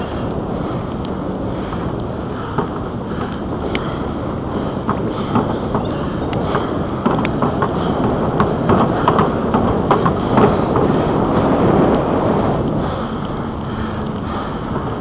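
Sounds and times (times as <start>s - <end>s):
bicycle tyres rolling on pavement: 0.0s - 15.0s
wind rushing: 0.0s - 15.0s
bicycle clicks and knocks: 1.7s - 11.2s.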